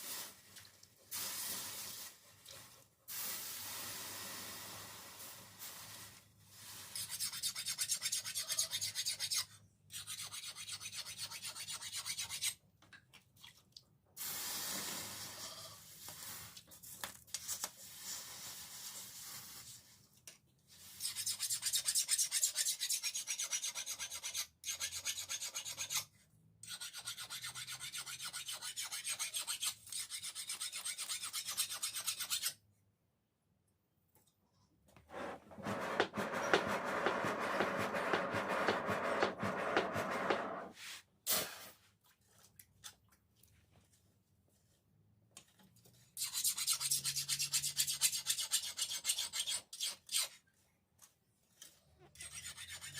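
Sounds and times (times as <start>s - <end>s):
hand file rasping on steel: 21.0s - 32.6s, 35.1s - 40.5s, 46.2s - 50.3s, 52.1s - 52.9s.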